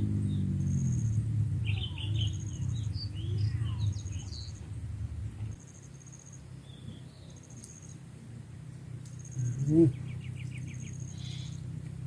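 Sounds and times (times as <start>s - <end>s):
low rumble: 0.0s - 5.6s
birds chirping: 0.0s - 12.0s.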